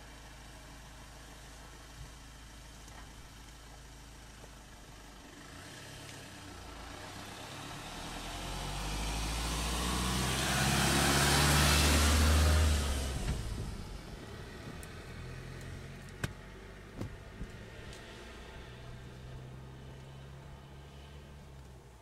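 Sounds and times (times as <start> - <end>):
vehicle engine and tyre noise: 0.0 - 22.0.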